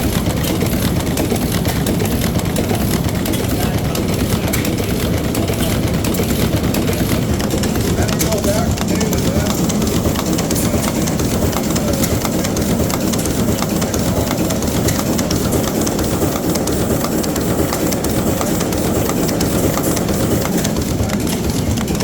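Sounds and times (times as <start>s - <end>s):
marine diesel engine clattering: 0.0s - 22.0s.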